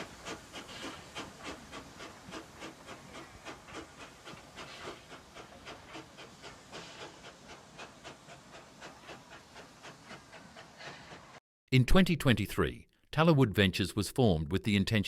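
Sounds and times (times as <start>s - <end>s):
steam locomotive chuffing: 0.0s - 11.4s.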